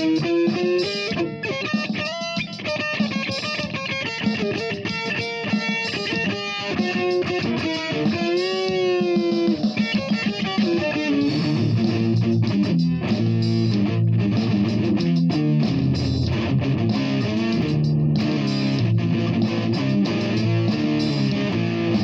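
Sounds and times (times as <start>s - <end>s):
electric guitar melody: 0.0s - 22.0s.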